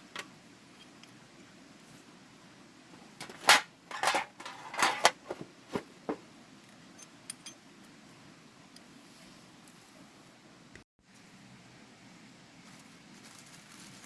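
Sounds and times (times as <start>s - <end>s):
metal objects clattering: 3.2s - 6.2s.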